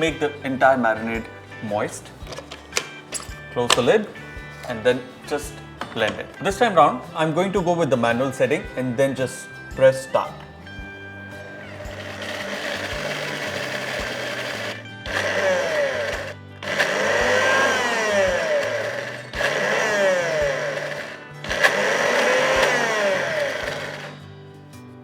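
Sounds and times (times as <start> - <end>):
mixer grinder running: 10.8 - 24.3.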